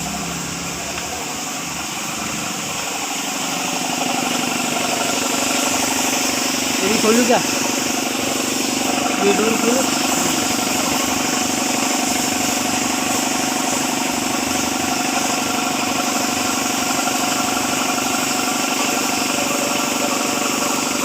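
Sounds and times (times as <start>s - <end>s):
car engine idling: 0.0s - 20.8s.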